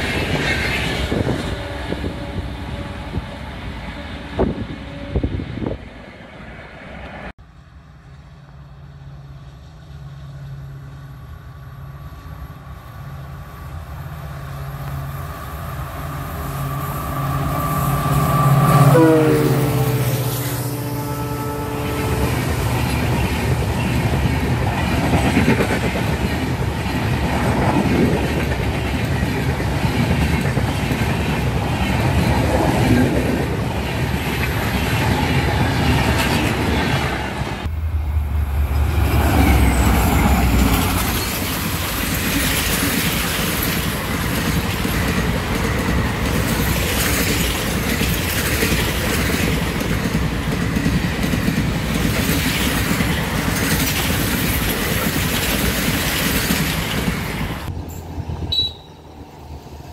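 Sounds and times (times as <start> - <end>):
train wheels rumbling and clattering: 0.0 - 4.8, 21.9 - 58.5.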